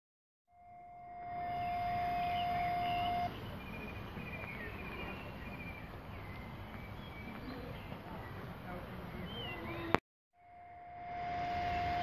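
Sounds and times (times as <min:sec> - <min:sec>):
outdoor background noise: 0:00.5 - 0:12.0
birds chirping and trilling: 0:01.2 - 0:10.0
steady even tone: 0:10.4 - 0:12.0.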